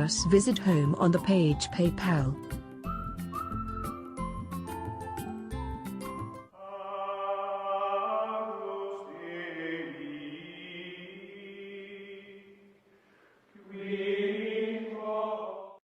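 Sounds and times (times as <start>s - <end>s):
slow chant-like music: 6.5s - 12.8s, 13.5s - 15.8s.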